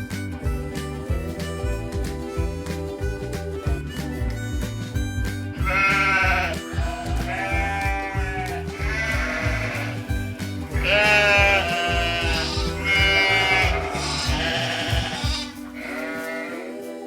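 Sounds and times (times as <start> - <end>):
background music with beat: 0.0 - 17.0
goat bleating: 5.6 - 16.7.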